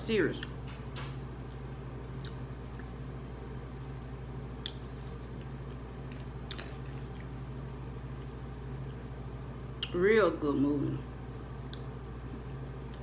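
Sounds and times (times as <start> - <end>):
steady low hum: 0.0 - 13.0
person chewing food: 1.4 - 9.9.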